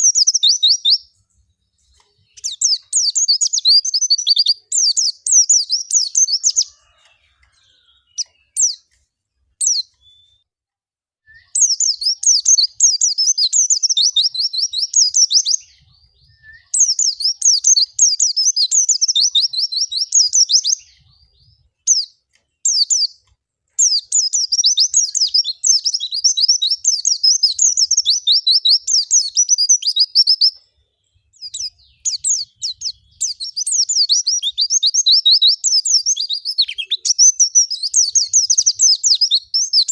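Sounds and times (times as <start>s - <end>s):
bird twittering song: 0.0s - 10.5s, 11.3s - 39.9s.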